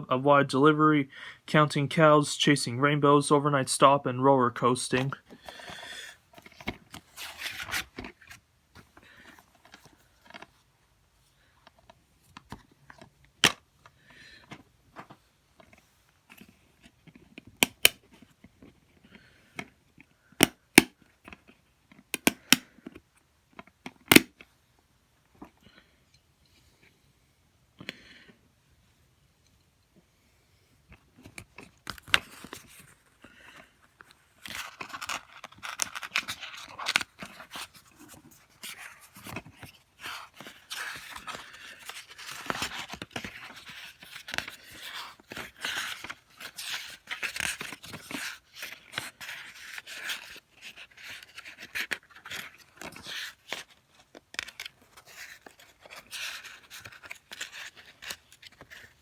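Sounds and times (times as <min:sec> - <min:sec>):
plastic cases clicking and scraping: 0:11.7 - 0:24.5, 0:30.9 - 0:59.0.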